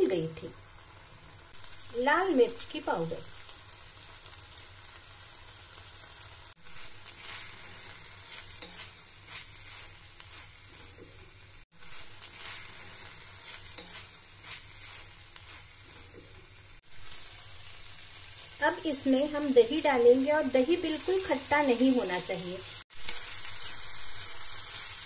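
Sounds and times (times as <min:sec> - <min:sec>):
food sizzling in hot oil: 0:00.0 - 0:25.0
spoon stirring and scraping pan: 0:06.6 - 0:17.2.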